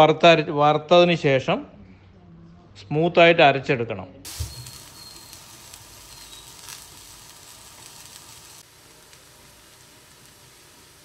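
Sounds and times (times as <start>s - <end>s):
food sizzling in oil: 4.3s - 11.0s.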